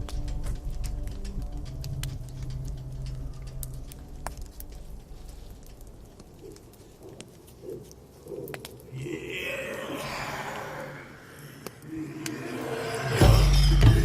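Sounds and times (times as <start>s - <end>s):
low background music: 0.0s - 6.4s
campfire crackling: 0.0s - 14.0s.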